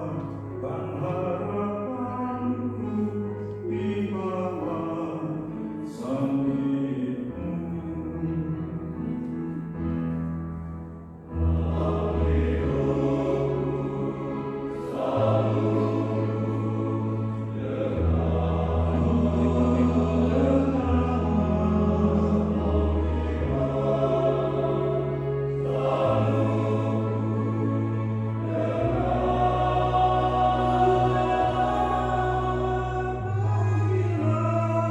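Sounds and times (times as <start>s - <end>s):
church choir singing: 0.0s - 10.0s, 10.6s - 34.9s.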